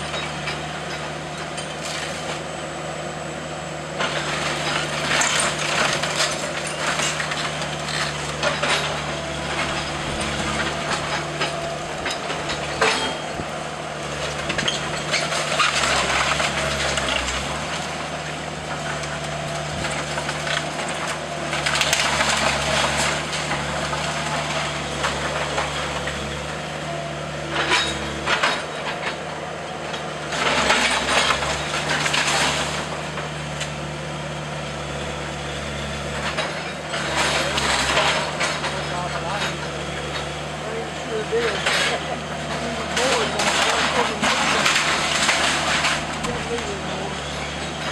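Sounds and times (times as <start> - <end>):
diesel engine running: 0.0 - 47.9
timber crushing and splintering: 4.0 - 13.4, 14.0 - 26.8, 30.3 - 33.9, 35.6 - 47.9.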